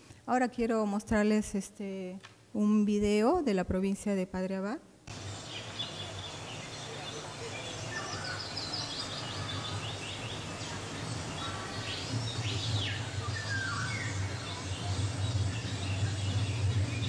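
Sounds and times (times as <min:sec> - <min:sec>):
steady low hum: 0:05.0 - 0:17.0
birds chirping and trilling: 0:05.1 - 0:17.0.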